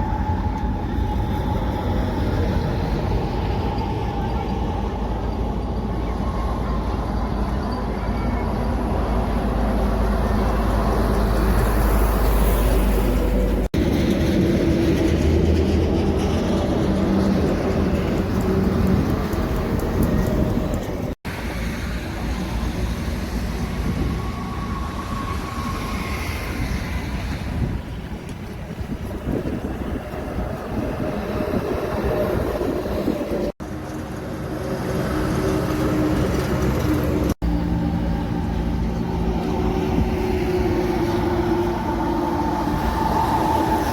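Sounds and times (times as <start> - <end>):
heavy vehicles passing: 0.0 - 43.9.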